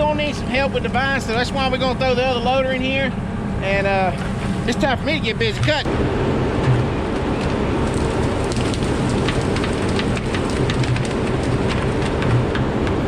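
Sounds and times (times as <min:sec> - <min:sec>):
diesel engine running: 0:00.0 - 0:13.0
rain pattering: 0:07.1 - 0:12.6.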